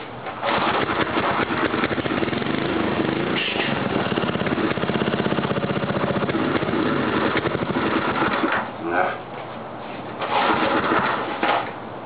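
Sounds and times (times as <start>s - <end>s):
small engine running: 0.4s - 8.6s.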